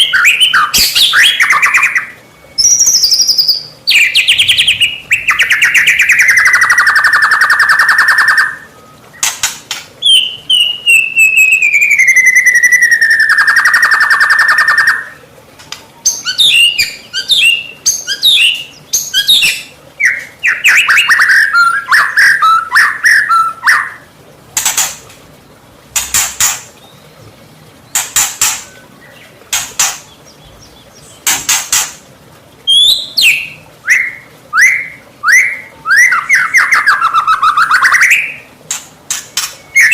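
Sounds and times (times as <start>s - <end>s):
bird singing trills and whistles: 0.0s - 24.1s, 32.6s - 39.9s.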